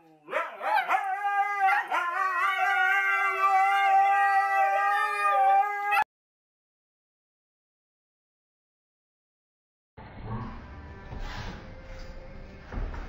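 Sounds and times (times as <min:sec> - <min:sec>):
dogs howling and yipping: 0:00.3 - 0:06.1.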